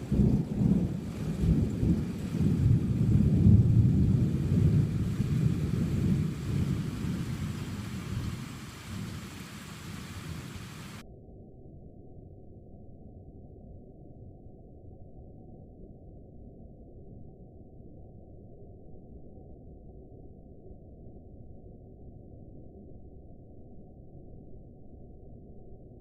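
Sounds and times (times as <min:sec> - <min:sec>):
thunder rumbling: 0:00.0 - 0:11.0.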